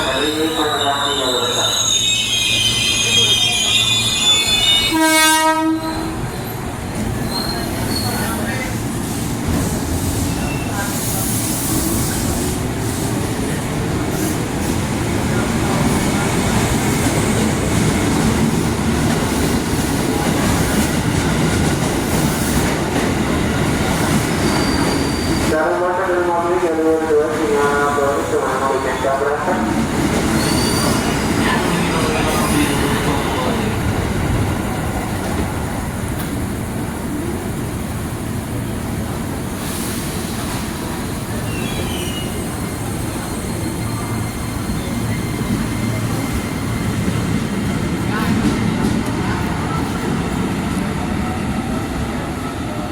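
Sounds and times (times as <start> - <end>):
train wheels rumbling on track: 0.0 - 52.9
faint high wheel squeal: 0.4 - 5.0, 7.2 - 8.4, 24.5 - 25.4, 30.4 - 31.2, 41.4 - 46.6.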